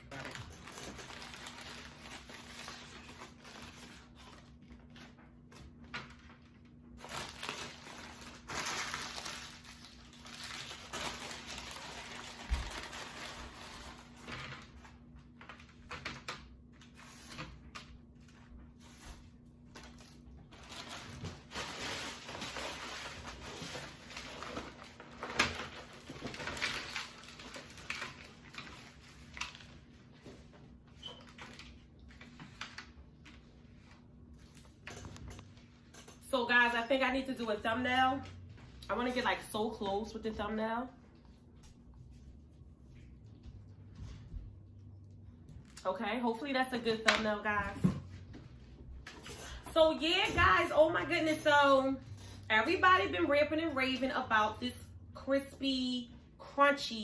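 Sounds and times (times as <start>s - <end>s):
food packaging rustling: 6.1s - 15.8s, 18.2s - 35.9s.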